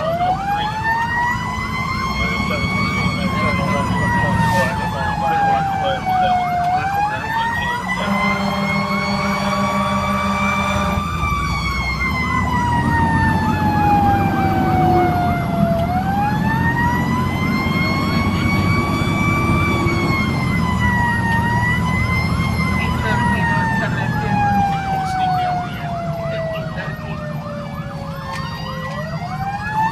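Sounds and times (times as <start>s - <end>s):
truck engine running: 0.0s - 29.5s
electronic siren wailing: 0.0s - 29.9s
warbling siren yelp: 0.0s - 29.9s
low steady horn tone: 7.9s - 11.1s.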